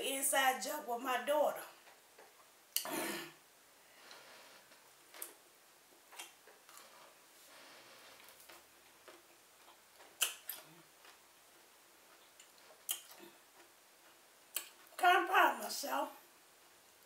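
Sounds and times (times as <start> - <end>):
sharp mouth clicks and smacks: 6.1 - 6.8, 9.0 - 11.2, 12.4 - 13.7, 14.5 - 14.9
chewing pepper close up: 8.4 - 11.2, 12.1 - 13.7.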